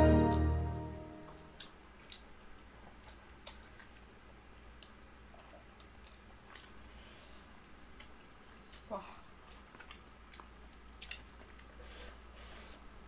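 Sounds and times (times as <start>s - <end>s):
close chewing of noodles: 1.5s - 4.2s, 5.3s - 13.0s.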